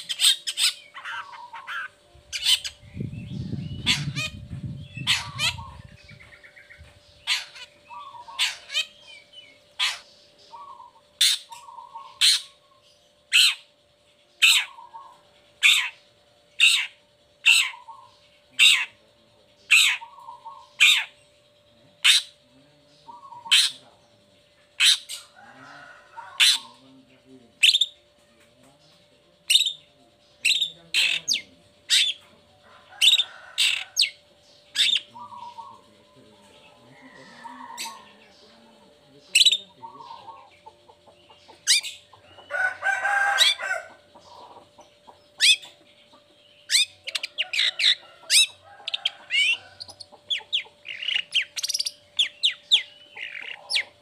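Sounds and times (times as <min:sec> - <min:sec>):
bird harsh rasping calls: 0:00.0 - 0:13.8, 0:14.4 - 0:19.0, 0:19.6 - 0:28.1, 0:29.4 - 0:54.0.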